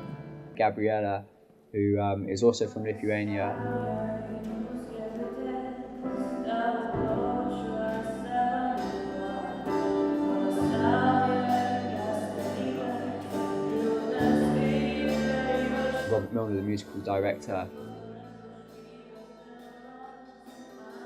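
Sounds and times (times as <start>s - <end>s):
voices singing together: 3.0s - 21.0s
sustained chords: 3.3s - 19.1s.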